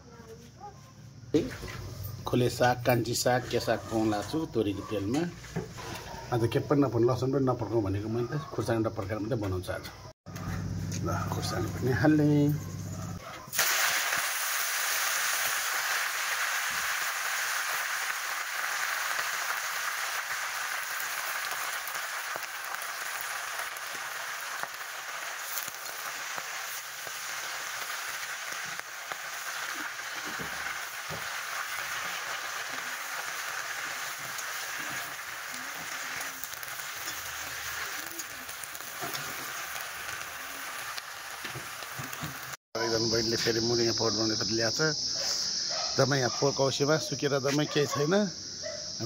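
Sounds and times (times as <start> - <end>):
greens sizzling in hot oil: 13.5 - 49.0.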